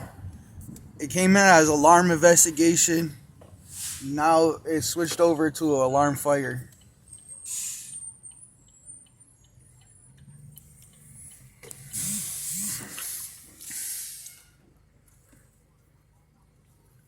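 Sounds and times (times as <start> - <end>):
faint regular ticking: 5.3 - 11.9
bursts of hissing: 11.8 - 14.4.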